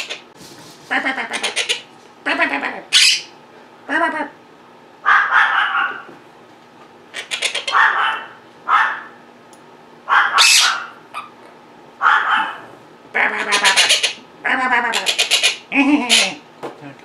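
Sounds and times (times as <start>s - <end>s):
parrots squawking: 0.0s - 0.2s, 0.9s - 3.4s, 5.0s - 6.1s, 7.1s - 9.2s, 10.1s - 11.4s, 12.0s - 16.4s.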